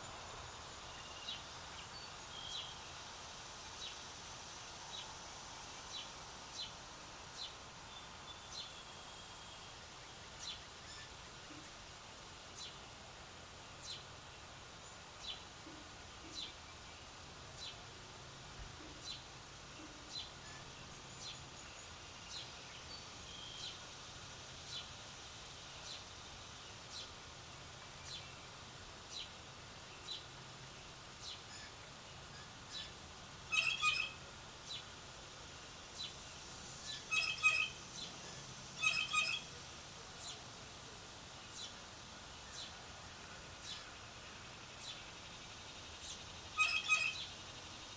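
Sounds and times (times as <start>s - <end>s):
bird chirping: 31.2s - 34.9s, 35.9s - 39.5s, 43.4s - 47.9s
harsh bird calls: 46.1s - 47.3s.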